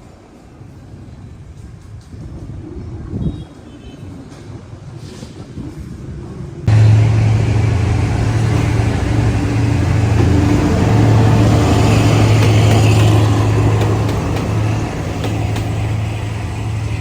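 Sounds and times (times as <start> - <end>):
locomotive engine running: 6.7 - 17.0.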